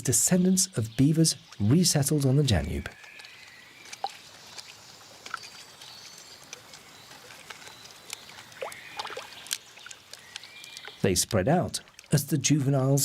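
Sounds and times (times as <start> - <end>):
water splashing softly: 1.3 - 12.2
small ticks and clicks: 2.8 - 12.2.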